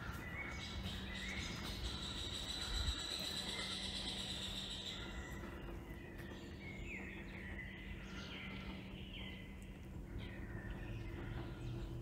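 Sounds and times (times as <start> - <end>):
birds singing falling notes: 0.0 - 12.0
steady low hum: 0.0 - 12.0.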